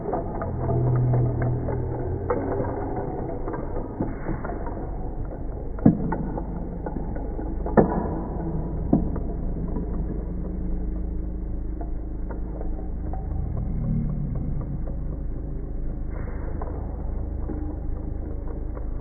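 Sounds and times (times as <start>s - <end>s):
low steady rumble: 0.0s - 19.0s
steady low hum: 0.0s - 19.0s.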